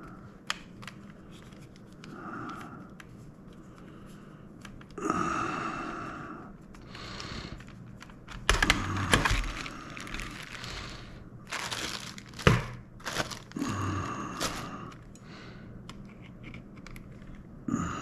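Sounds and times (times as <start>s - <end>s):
objects rustling and crinkling: 0.0s - 2.1s, 6.6s - 17.6s.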